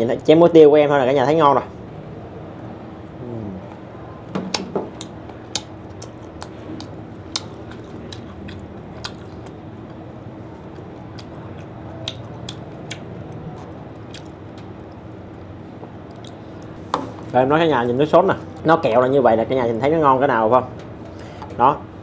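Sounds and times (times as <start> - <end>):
person chewing crispy food: 5.0 - 16.8.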